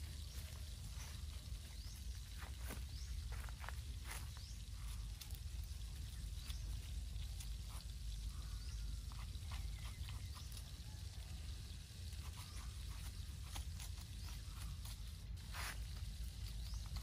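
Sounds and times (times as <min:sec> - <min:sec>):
brush dabbing and scraping sauce: 0:06.0 - 0:10.9, 0:11.8 - 0:17.0.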